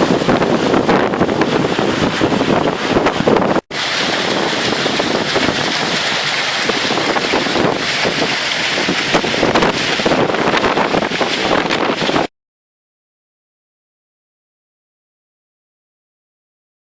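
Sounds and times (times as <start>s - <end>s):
wind buffeting microphone: 0.0s - 12.3s.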